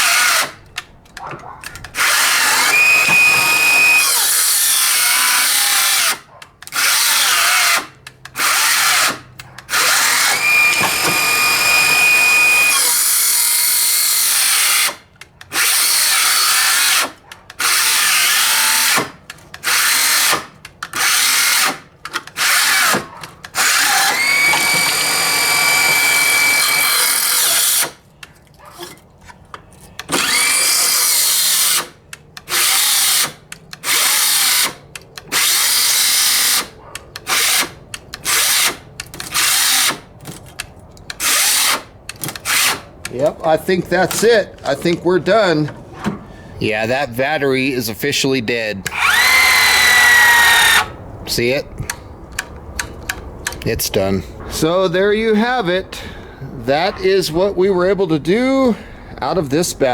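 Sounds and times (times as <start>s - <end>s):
circular saw cutting wood: 0.0s - 0.6s, 1.9s - 28.0s, 30.0s - 40.1s, 41.2s - 45.8s, 48.9s - 51.0s.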